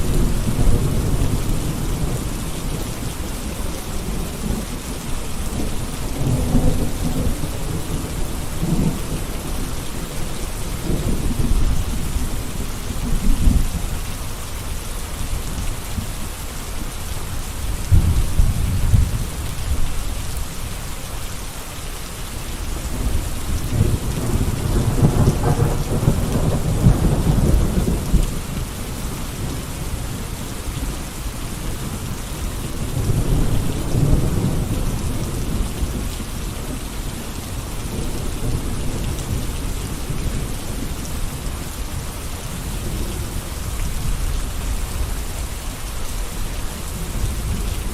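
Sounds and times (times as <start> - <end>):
steady rain falling: 0.0 - 47.9
deep thunder rumbles: 3.6 - 13.8, 17.8 - 20.2, 22.9 - 31.0, 32.8 - 41.6.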